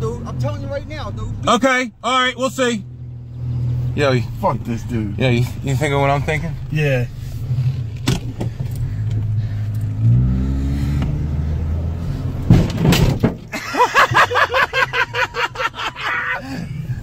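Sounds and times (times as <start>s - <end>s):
car engine revving: 0.0s - 13.3s
loud thump: 12.4s - 13.5s
man laughing: 13.5s - 17.0s.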